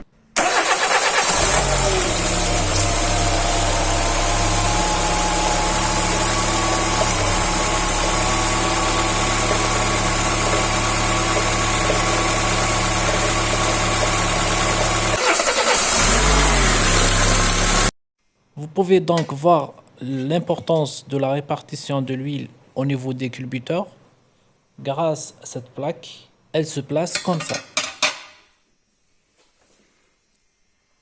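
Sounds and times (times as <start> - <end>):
car engine idling: 0.4 - 17.9.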